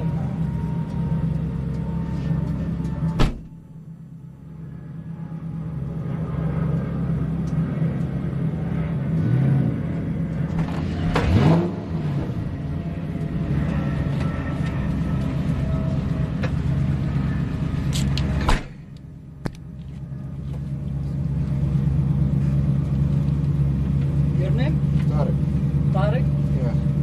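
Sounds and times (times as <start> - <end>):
car engine idling: 0.0 - 27.0
engine revving: 4.6 - 19.6.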